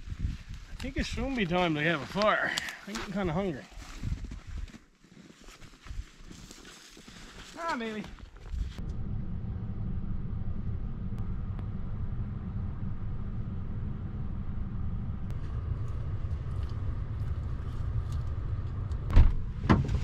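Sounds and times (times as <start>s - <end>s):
motor vehicle rumbling: 8.4s - 20.0s.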